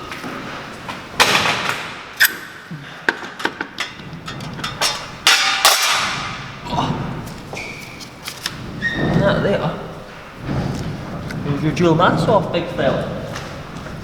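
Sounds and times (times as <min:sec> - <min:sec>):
metallic knocks and clanks: 0:03.1 - 0:09.5.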